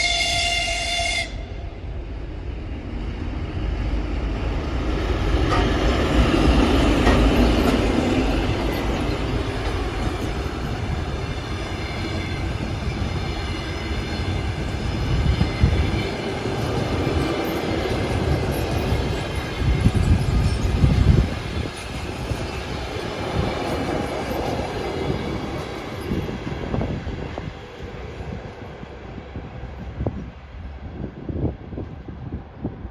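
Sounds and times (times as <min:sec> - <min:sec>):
locomotive horn: 0:00.0 - 0:01.8
diesel locomotive engine passing: 0:00.0 - 0:32.9
train wheels rumbling on rails: 0:00.0 - 0:32.9.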